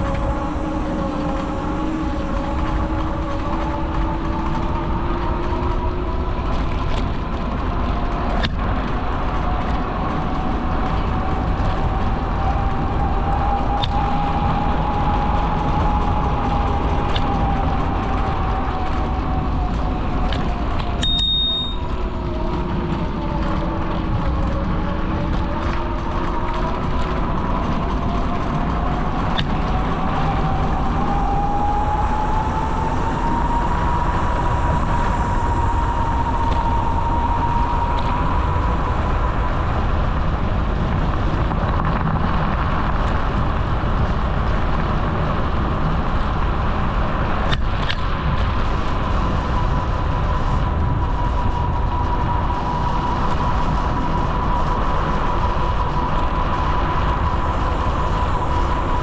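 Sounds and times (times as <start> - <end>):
bicycle rolling on pavement: 0.0 - 59.0
wind on microphone: 0.0 - 59.0
thin whine: 11.8 - 23.1.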